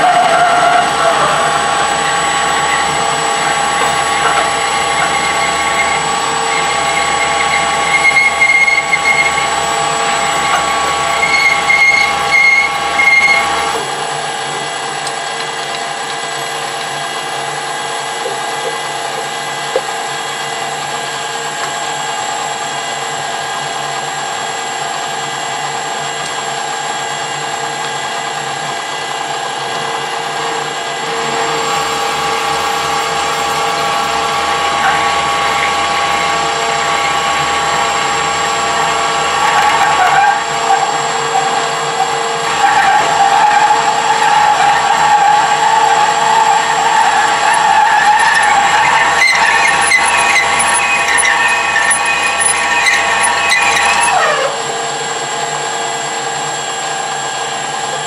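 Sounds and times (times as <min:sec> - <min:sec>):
drill squealing in metal: 0:00.0 - 0:14.6, 0:30.3 - 0:55.0
metal lathe gear whine: 0:00.0 - 0:58.0.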